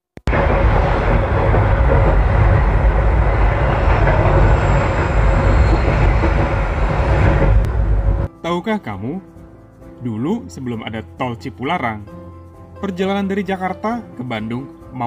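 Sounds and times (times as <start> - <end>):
passing train: 0.3 - 8.3
train wheels rumbling on rails: 0.3 - 8.3.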